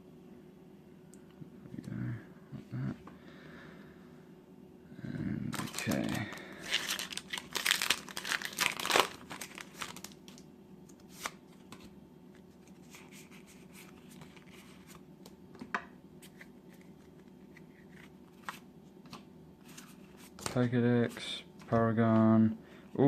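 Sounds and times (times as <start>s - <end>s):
wrapper tearing and crinkling: 5.5s - 10.4s.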